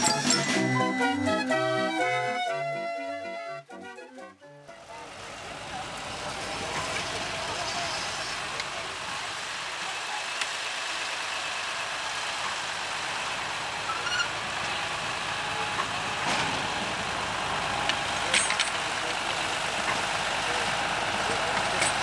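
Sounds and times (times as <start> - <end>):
tractor engines running: 0.0 - 22.0.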